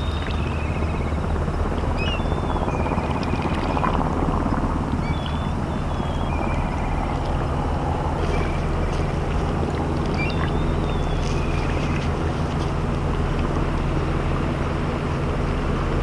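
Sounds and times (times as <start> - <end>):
bird singing trill: 0.0 - 3.8, 4.9 - 12.3
ship engines droning: 0.0 - 16.0.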